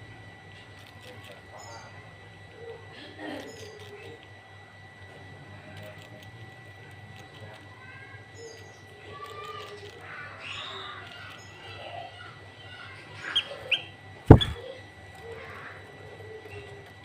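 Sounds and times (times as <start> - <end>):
songbirds chirping and calling: 8.3 - 17.0
sharp high bird calls: 13.2 - 14.6
loud knock: 14.3 - 14.6.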